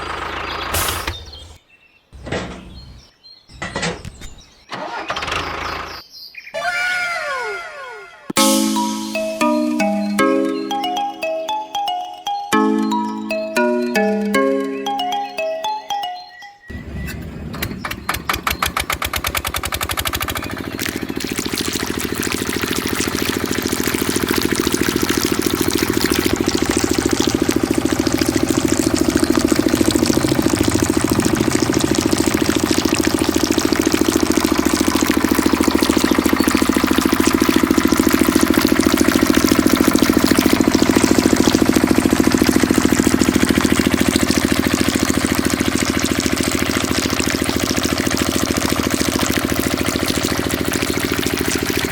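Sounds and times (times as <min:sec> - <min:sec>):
diesel engine driving water pump: 0:00.0 - 0:01.6, 0:02.2 - 0:06.0, 0:16.7 - 0:51.9.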